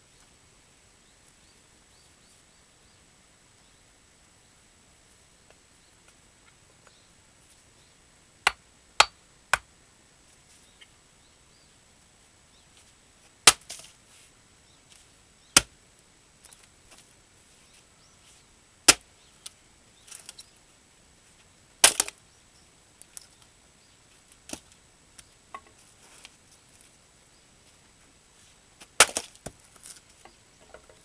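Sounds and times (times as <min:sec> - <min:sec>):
axe striking log: 0:08.5 - 0:09.7, 0:13.5 - 0:13.7, 0:21.8 - 0:22.1, 0:29.0 - 0:29.6.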